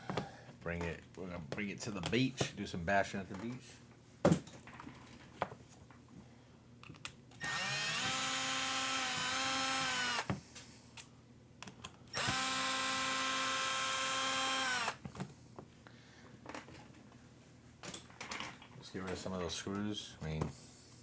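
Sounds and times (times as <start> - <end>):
cordless drill motor whine: 7.4 - 10.4, 12.1 - 15.0.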